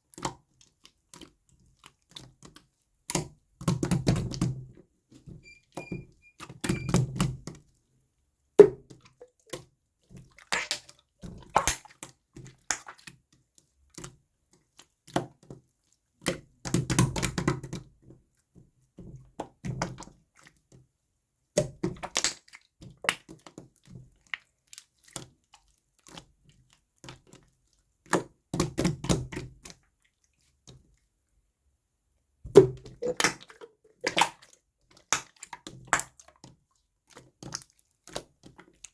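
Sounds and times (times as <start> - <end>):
slime squelching: 10.2 - 13.1, 32.5 - 38.9.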